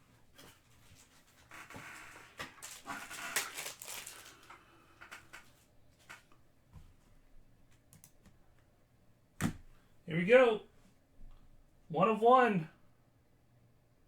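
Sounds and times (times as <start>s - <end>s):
wrapper rustling and crinkling: 0.5s - 4.7s.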